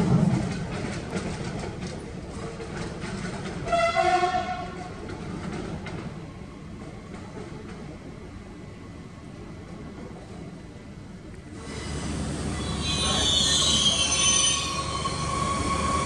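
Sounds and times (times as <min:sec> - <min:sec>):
train rumbling along track: 0:00.0 - 0:16.0
train horn blast: 0:03.7 - 0:04.8, 0:12.6 - 0:15.1.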